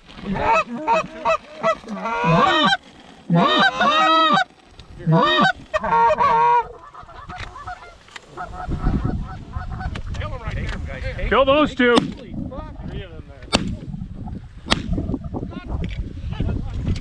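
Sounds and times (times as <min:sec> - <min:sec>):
goose honking: 0:00.3 - 0:09.9.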